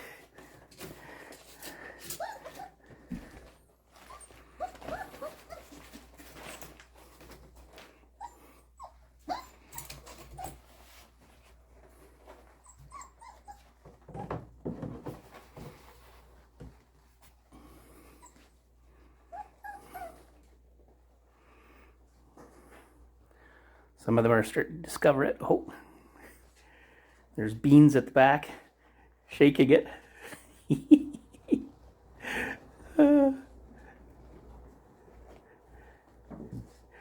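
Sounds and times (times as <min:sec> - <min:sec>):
paws scuffling: 0:00.0 - 0:23.2, 0:31.4 - 0:37.0
puppies whining and yipping: 0:01.6 - 0:11.4, 0:12.0 - 0:14.5, 0:17.8 - 0:20.7.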